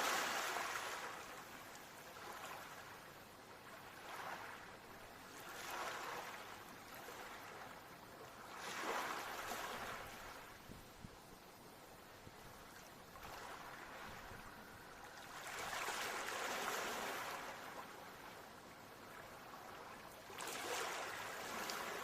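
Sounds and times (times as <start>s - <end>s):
ocean waves washing in: 0.0s - 3.1s, 12.6s - 22.0s.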